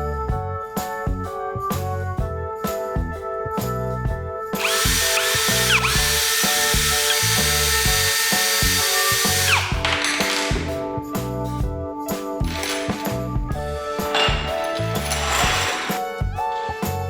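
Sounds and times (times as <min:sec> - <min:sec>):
background music: 0:00.0 - 0:17.0
power drill whining: 0:04.6 - 0:10.7, 0:14.1 - 0:15.9.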